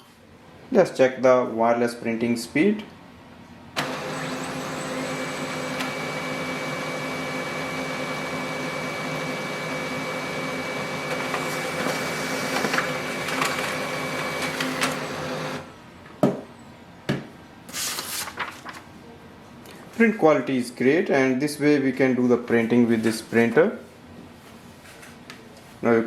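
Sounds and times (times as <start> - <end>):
printer clicks: 3.8 - 8.1, 11.0 - 15.7
laser printer printing: 3.8 - 15.8.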